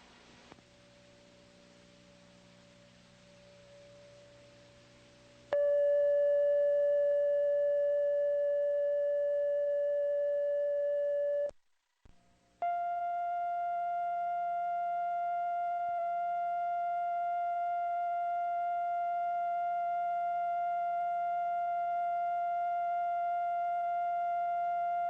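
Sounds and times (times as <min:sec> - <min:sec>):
tape hiss and hum: 0:00.0 - 0:25.0
steady electronic tone: 0:05.5 - 0:11.5.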